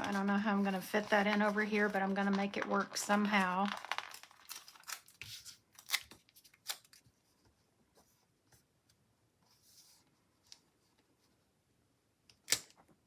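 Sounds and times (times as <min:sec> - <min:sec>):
paper rustle: 0:00.0 - 0:08.2.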